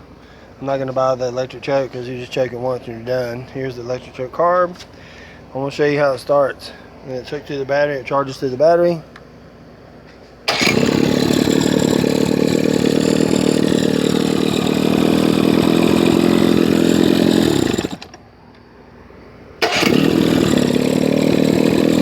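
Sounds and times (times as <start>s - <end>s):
outboard motor starting and running: 10.5s - 18.2s, 19.6s - 22.0s.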